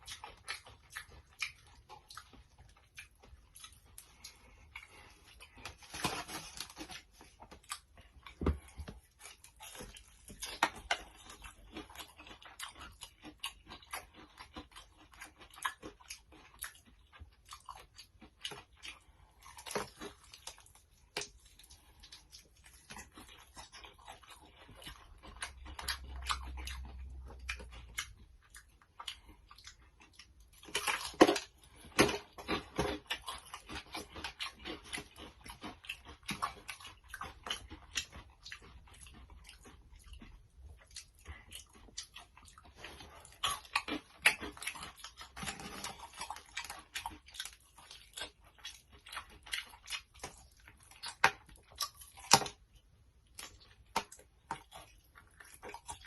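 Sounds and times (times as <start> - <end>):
chewing and crunching fried chicken: 0.0 - 56.0.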